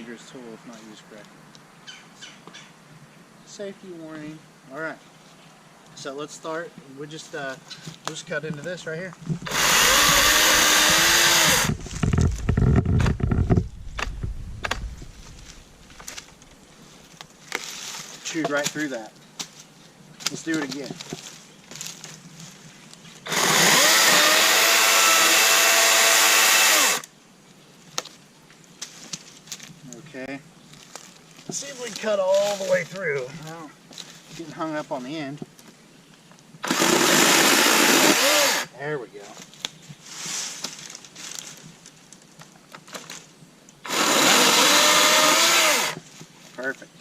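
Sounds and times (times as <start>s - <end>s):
battery chainsaw cutting wood: 9.4s - 14.1s, 23.3s - 27.1s, 36.6s - 38.7s, 43.8s - 46.0s.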